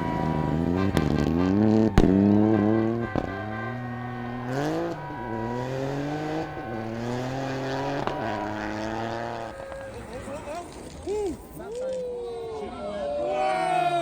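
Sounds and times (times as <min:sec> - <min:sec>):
rally car engine accelerating: 0:00.0 - 0:10.5.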